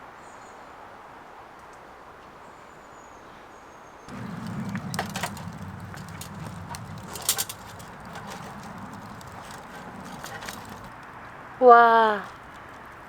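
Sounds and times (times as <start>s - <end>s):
campfire crackling and popping: 4.1s - 11.2s.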